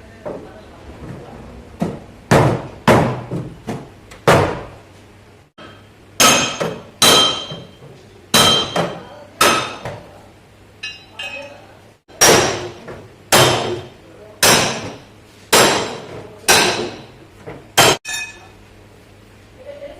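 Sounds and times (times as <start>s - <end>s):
hammer striking sheet metal: 5.6s - 7.8s, 8.4s - 9.9s, 12.1s - 17.1s, 17.8s - 18.5s.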